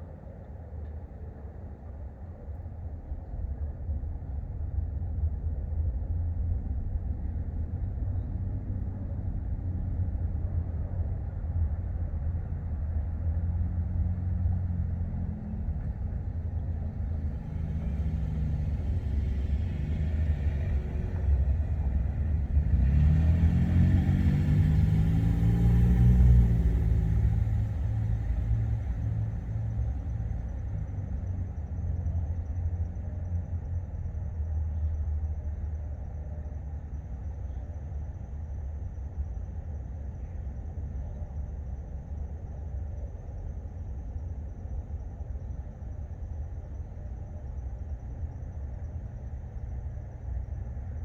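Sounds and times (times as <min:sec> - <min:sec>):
low steady rumble: 0:00.0 - 0:51.0
vehicle engine passing: 0:16.8 - 0:31.2.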